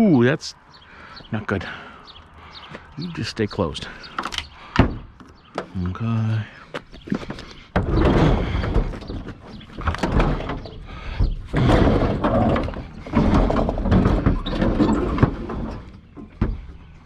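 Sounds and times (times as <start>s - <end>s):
scrap scraping and rattling: 7.0s - 16.7s.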